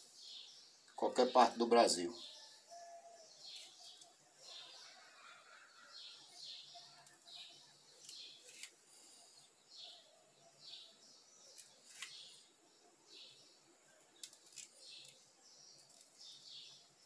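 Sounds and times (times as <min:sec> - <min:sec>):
small bird high chirps: 0:00.0 - 0:08.7.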